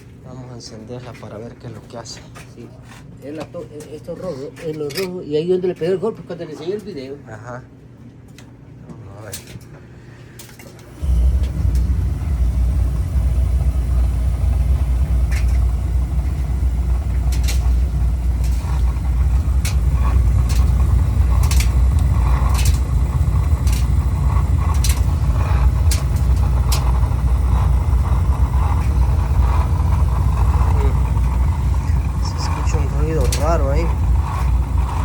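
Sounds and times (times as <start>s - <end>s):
oil burner rumbling: 10.4s - 35.0s
rough rasping noise: 13.4s - 35.0s.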